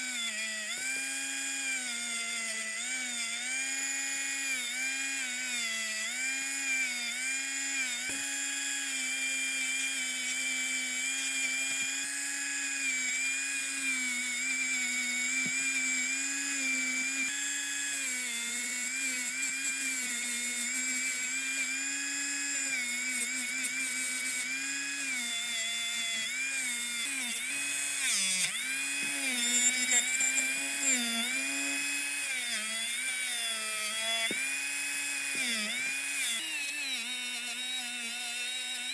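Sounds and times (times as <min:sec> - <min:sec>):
rotary tool whining: 0:00.0 - 0:38.9.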